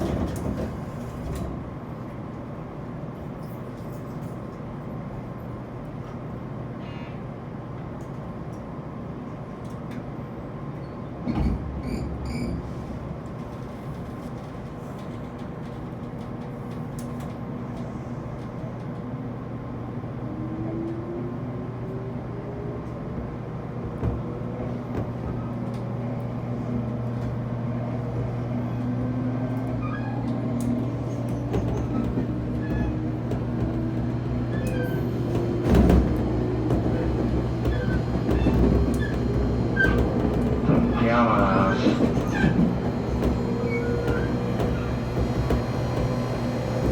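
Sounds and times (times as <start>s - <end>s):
train motor howl: 26.5s - 46.9s.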